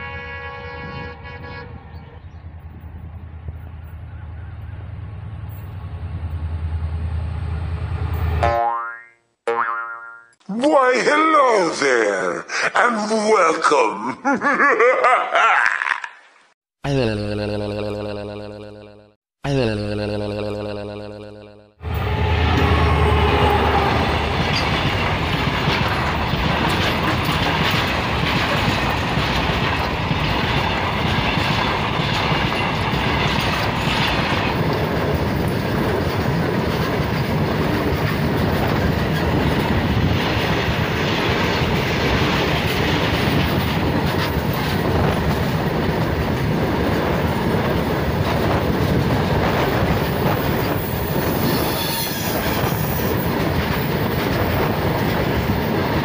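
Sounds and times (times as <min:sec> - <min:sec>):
locomotive low rumble: 0:00.5 - 0:08.4, 0:21.8 - 0:50.9
freight train wheels on rails: 0:21.8 - 0:56.0
clickety-clack over rail joints: 0:23.6 - 0:56.0
high wheel squeal: 0:50.5 - 0:53.2.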